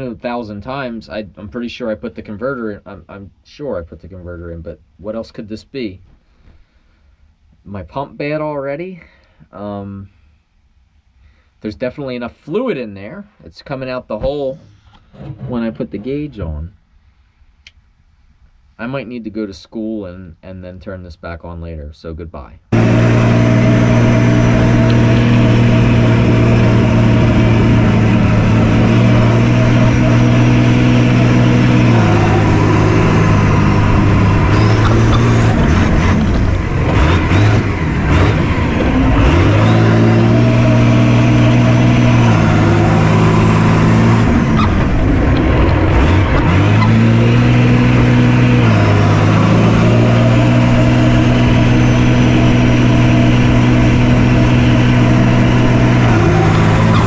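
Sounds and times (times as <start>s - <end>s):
rough clattering: 14.6s - 16.3s
diesel truck engine running: 22.7s - 57.0s.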